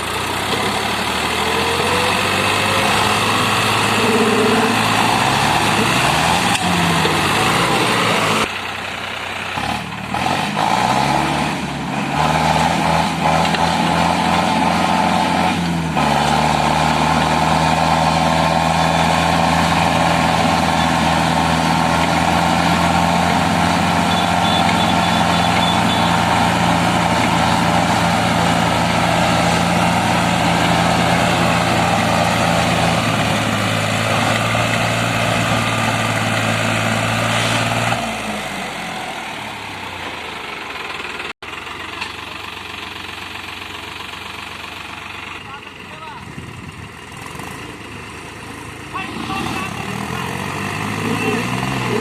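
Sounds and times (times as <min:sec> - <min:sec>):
tractor diesel engines running hard: 0:00.0 - 0:52.0.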